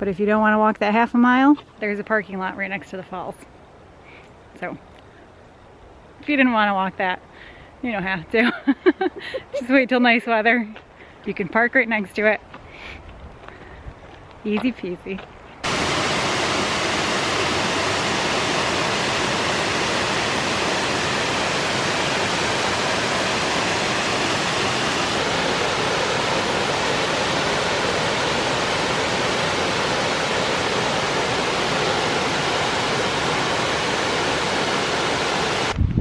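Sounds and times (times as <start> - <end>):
waterfall roaring: 15.6 - 35.8.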